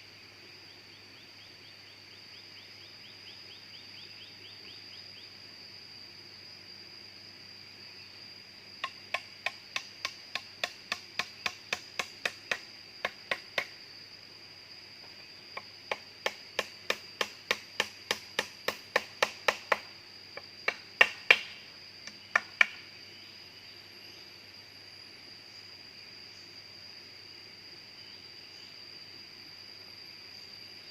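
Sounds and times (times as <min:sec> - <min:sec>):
high insect drone: 0:00.0 - 0:30.9
tool striking wood: 0:08.8 - 0:13.7, 0:15.9 - 0:19.9, 0:20.6 - 0:21.6, 0:22.3 - 0:22.8.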